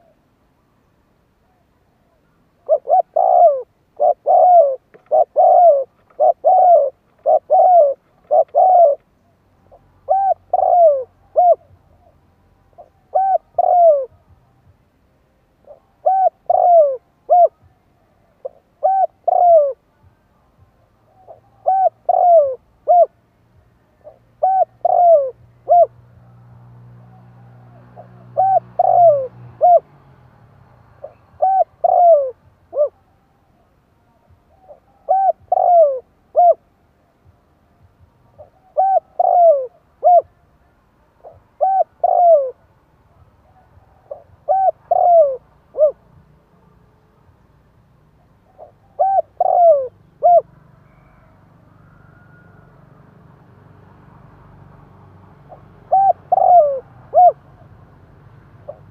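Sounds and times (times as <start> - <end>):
dove cooing: 2.6 - 9.1, 9.7 - 14.3, 15.6 - 19.9, 21.1 - 23.2, 24.0 - 30.0, 31.0 - 33.1, 34.5 - 36.7, 38.3 - 40.4, 41.2 - 42.7, 43.4 - 46.1, 48.3 - 52.8, 55.4 - 57.8, 58.6 - 58.9.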